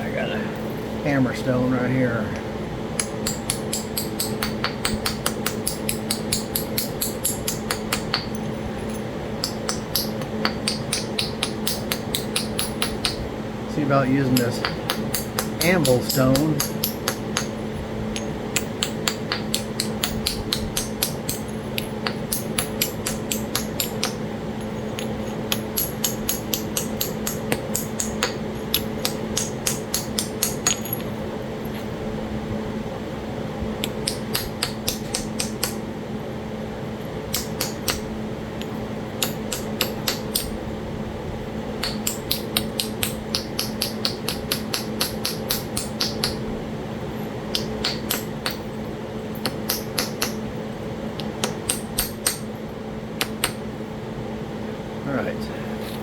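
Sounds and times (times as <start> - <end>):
stone tapping on stone: 3.0 - 8.4, 9.4 - 13.2, 14.3 - 17.6, 18.2 - 24.2, 25.0 - 31.1, 33.8 - 35.8, 37.3 - 38.0, 38.6 - 40.5, 41.8 - 46.4, 47.5 - 48.6, 49.4 - 50.4, 51.2 - 52.4.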